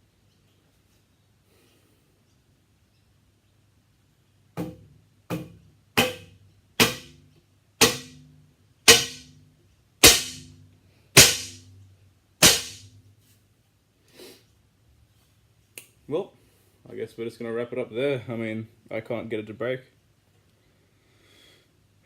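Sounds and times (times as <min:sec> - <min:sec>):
bowstring snapping with twang: 0:04.6 - 0:07.2, 0:08.9 - 0:09.3, 0:10.0 - 0:10.6, 0:11.2 - 0:11.7, 0:12.4 - 0:13.0.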